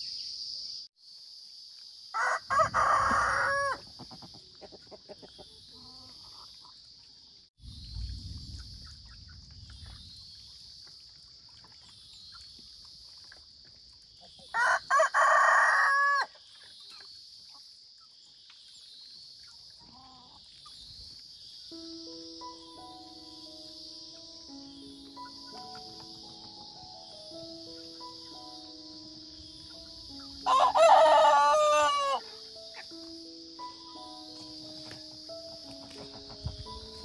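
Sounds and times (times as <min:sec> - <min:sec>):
rooster crowing: 0:02.2 - 0:03.8, 0:14.5 - 0:16.3, 0:30.4 - 0:32.3
low rumble: 0:07.6 - 0:10.1.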